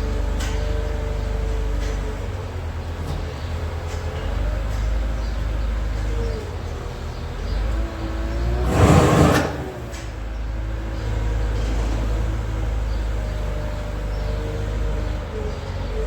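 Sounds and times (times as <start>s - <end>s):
loud rushing burst: 8.5s - 10.0s.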